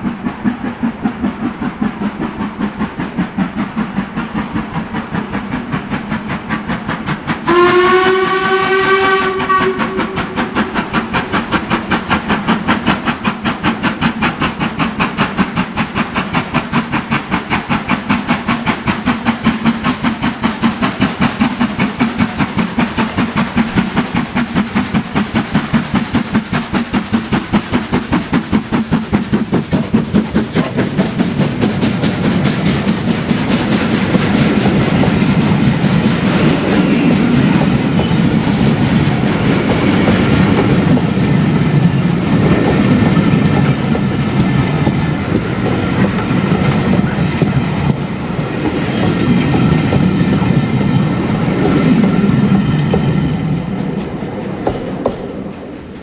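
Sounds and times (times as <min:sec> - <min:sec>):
steam locomotive exhaust beating: 0:00.0 - 0:56.0
steam whistle: 0:07.4 - 0:10.8.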